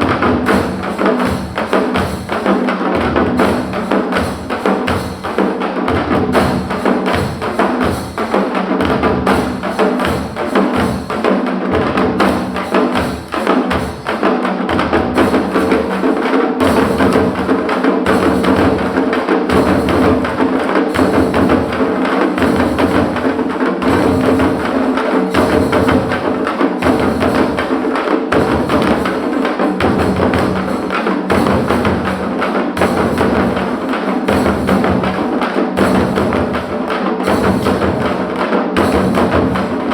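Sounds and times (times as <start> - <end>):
deep drum beats: 0.0 - 39.9
frame drums beaten fast: 0.0 - 39.9.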